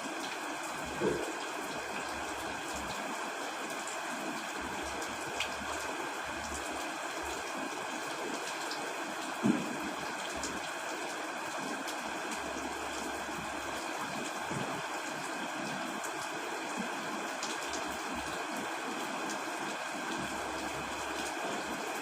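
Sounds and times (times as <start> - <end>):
steady rain: 0.0 - 22.0
dull knock: 9.4 - 9.7.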